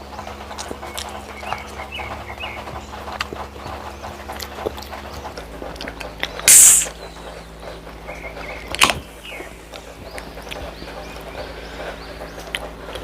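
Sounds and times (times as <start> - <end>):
wet chewing and mouth clicks: 0.2 - 13.0
short loud hissing burst: 6.5 - 6.9.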